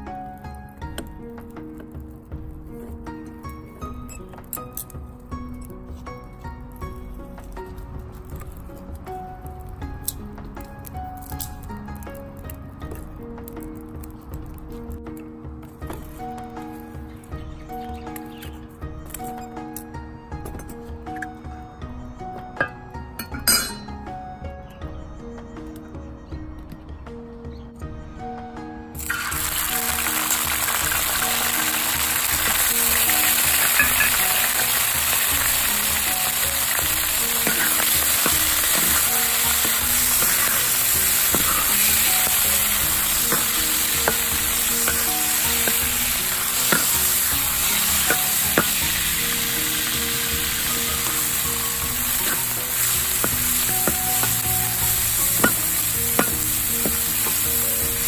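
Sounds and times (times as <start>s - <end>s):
prawns sizzling in hot oil: 29.0s - 58.0s.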